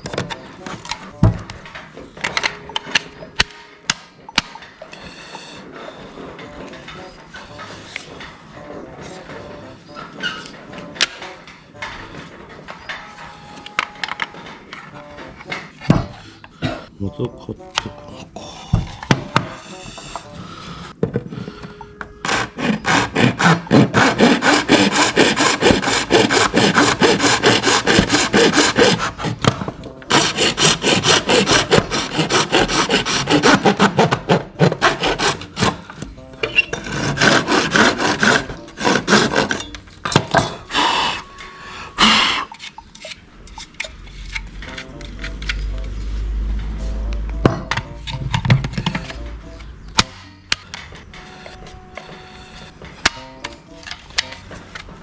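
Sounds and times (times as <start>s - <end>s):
hand file scraping: 22.2s - 55.0s.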